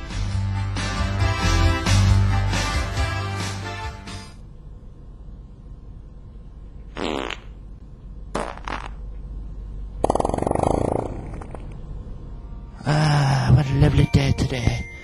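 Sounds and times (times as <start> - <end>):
fart noises: 6.9 - 7.6, 8.3 - 9.1, 10.0 - 11.8
low hum: 9.0 - 15.0.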